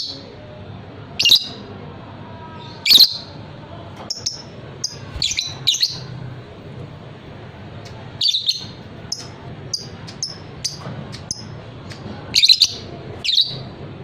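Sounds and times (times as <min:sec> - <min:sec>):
lovebird shrill chirping: 0:04.1 - 0:06.0.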